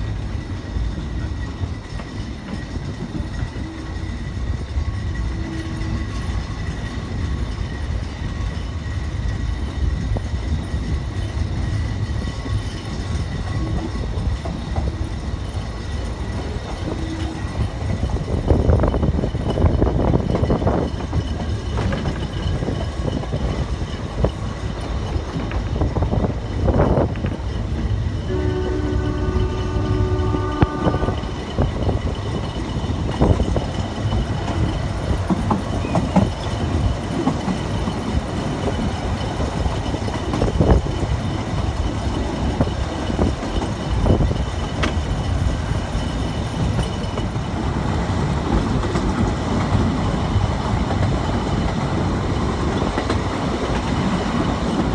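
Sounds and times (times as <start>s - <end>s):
train rumbling: 0.0s - 54.9s
locomotive whistle: 3.4s - 4.4s, 5.0s - 6.3s, 16.8s - 17.6s, 28.2s - 31.6s
wheel clicks over rail joints: 30.3s - 54.9s.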